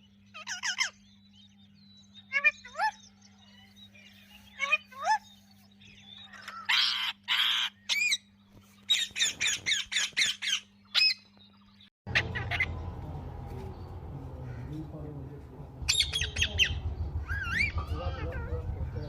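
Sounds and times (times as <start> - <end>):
low background hum: 0.0 - 19.0
parakeets screeching: 0.3 - 1.2, 6.2 - 8.3, 8.9 - 11.2, 12.1 - 12.9, 13.8 - 19.0.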